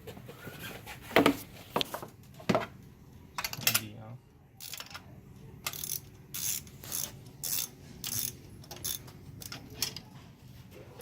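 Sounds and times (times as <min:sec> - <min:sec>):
ratchet wrench clicking: 0:04.6 - 0:05.0, 0:05.6 - 0:10.0.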